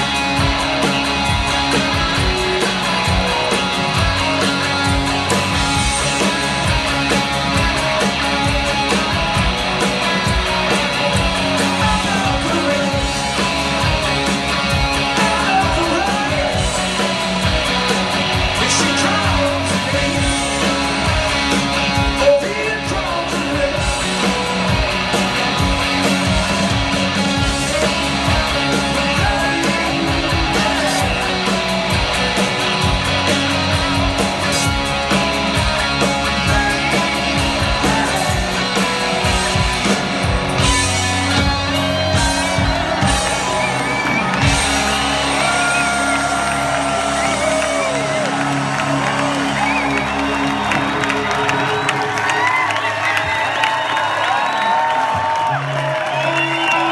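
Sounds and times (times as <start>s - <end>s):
drums: 0.0s - 56.9s
electric guitars: 0.0s - 56.9s
person singing: 10.7s - 24.6s.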